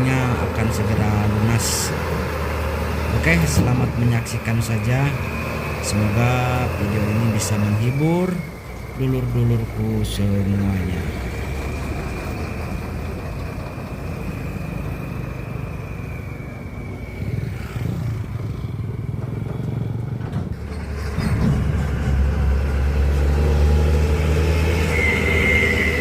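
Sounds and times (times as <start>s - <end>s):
heavy diesel engine running: 0.0s - 26.0s
thin high whine: 3.0s - 11.7s, 22.2s - 26.0s.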